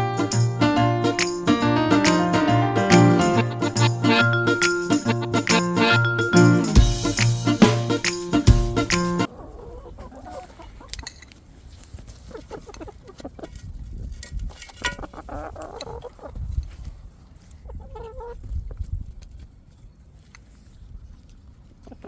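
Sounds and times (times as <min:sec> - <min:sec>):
chickens clucking: 0:08.9 - 0:13.8, 0:14.5 - 0:16.6, 0:17.4 - 0:18.9.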